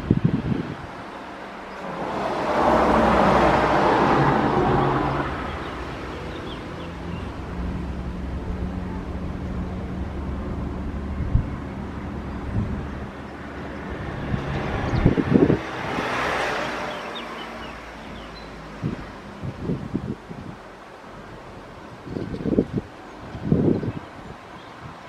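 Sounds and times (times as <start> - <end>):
low engine rumble: 0.0 - 16.0
vehicle passing by: 0.3 - 20.1.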